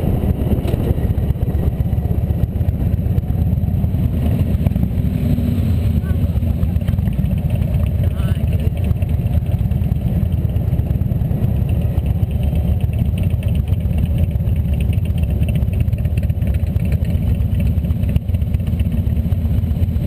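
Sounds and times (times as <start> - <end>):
wind rush on microphone: 0.0 - 5.1
motorcycle engine running: 0.0 - 20.0.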